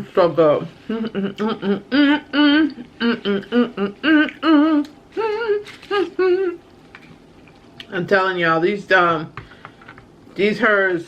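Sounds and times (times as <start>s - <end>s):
woman humming a tune: 0.8s - 6.7s.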